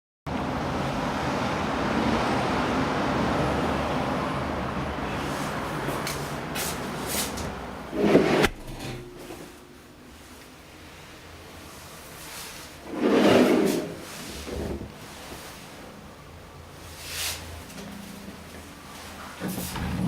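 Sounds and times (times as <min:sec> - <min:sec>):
passing vehicles rushing: 0:00.3 - 0:08.5.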